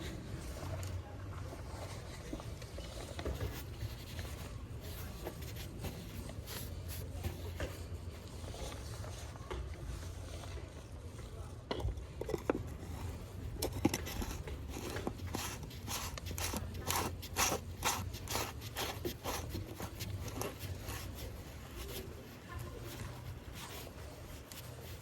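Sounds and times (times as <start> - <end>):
metal tool scraping: 13.0 - 22.0.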